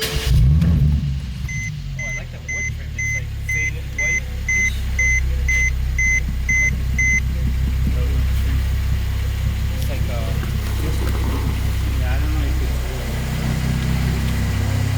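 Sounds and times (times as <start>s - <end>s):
car engine starting and idling: 0.0s - 14.9s
car warning chime beeping: 1.5s - 9.7s.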